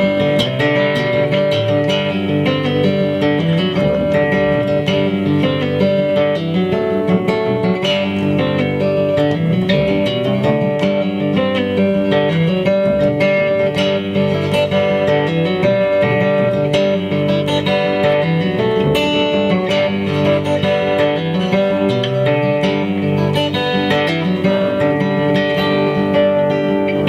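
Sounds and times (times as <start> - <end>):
acoustic band playing: 0.0 - 27.0
acoustic guitar strummed: 0.0 - 27.0.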